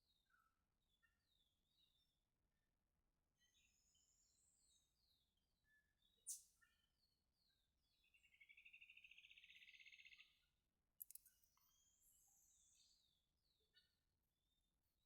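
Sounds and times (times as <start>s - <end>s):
sharp click: 11.0s - 11.3s.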